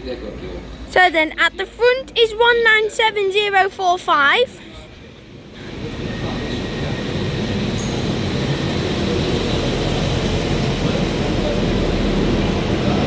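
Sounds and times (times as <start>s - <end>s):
wheel-on-rail noise: 5.1s - 13.0s
diesel engines droning: 5.4s - 13.0s.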